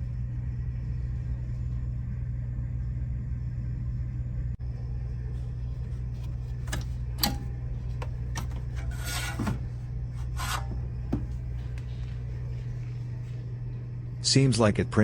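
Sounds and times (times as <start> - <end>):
low hum: 0.0 - 15.0
scraping rub: 8.4 - 11.8.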